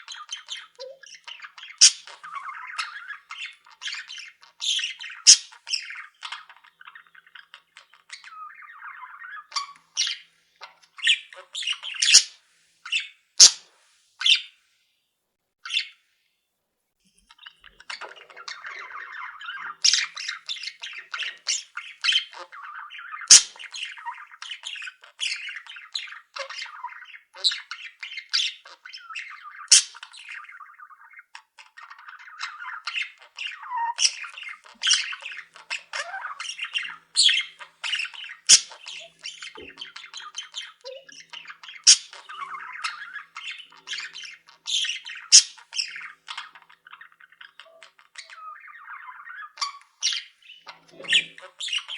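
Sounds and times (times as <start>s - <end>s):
budgies chattering and warbling: 0.0s - 14.6s, 15.6s - 16.0s, 17.2s - 51.9s
sharp bird squawks: 4.7s - 5.9s, 13.4s - 13.6s, 18.0s - 26.6s, 29.2s - 30.1s, 32.4s - 46.8s.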